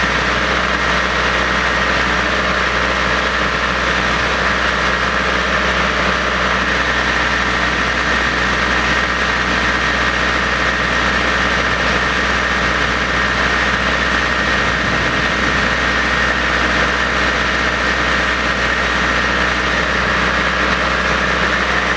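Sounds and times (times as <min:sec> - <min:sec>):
engine running steadily: 0:00.0 - 0:21.9
high whine: 0:14.1 - 0:17.1.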